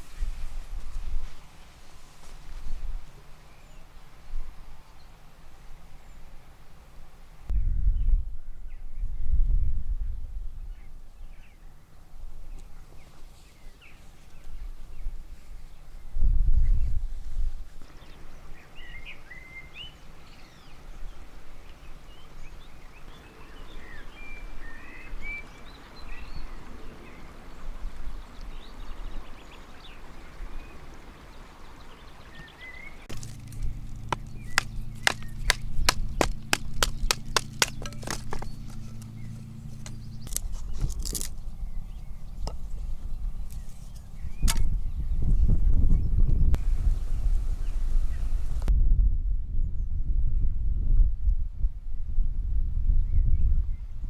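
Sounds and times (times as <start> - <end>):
wild birds chirping: 21.9 - 48.6
steady low hum: 33.1 - 45.2
low rumbling: 33.1 - 49.8.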